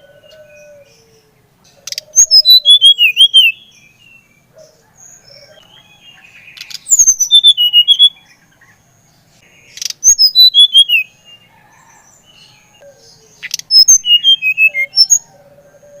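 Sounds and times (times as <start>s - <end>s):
songbird whistled phrases: 1.8s - 3.9s, 5.5s - 8.3s, 9.7s - 11.2s, 13.0s - 15.3s.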